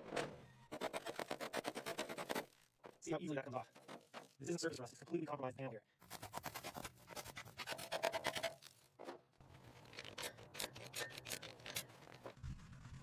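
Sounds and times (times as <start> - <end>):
scraping rust off steel: 6.1 - 12.8.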